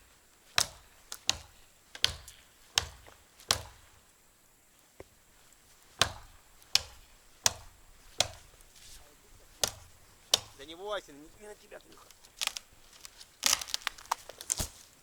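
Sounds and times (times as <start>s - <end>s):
axe chopping tree trunk: 0.4s - 4.1s, 5.8s - 10.9s, 11.9s - 15.0s.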